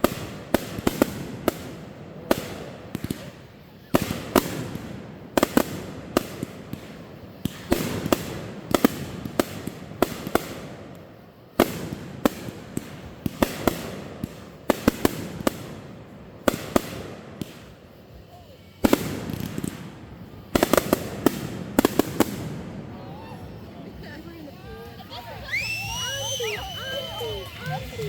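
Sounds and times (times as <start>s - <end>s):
fireworks banging: 0.0s - 28.0s.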